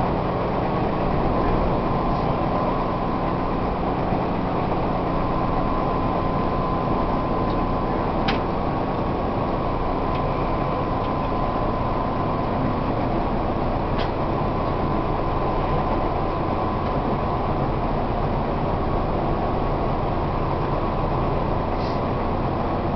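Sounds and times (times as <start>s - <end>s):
electric train interior noise: 0.0s - 22.9s.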